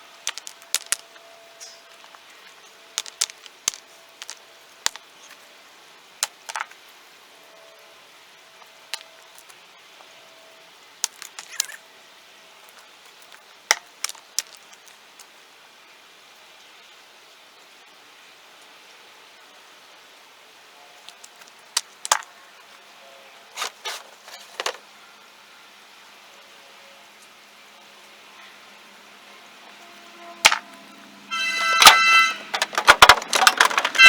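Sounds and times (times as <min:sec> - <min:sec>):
rocks knocking together: 0:00.3 - 0:01.2, 0:03.0 - 0:05.1, 0:06.2 - 0:06.8, 0:11.0 - 0:11.8, 0:12.6 - 0:15.0, 0:21.1 - 0:22.3, 0:31.6 - 0:34.0.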